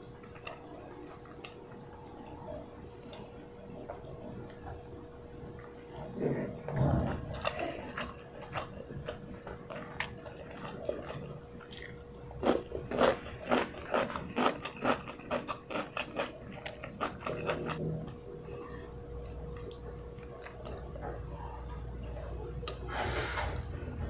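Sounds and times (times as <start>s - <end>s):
chewing rice: 0.0s - 24.0s
faint steady hum: 0.0s - 24.0s.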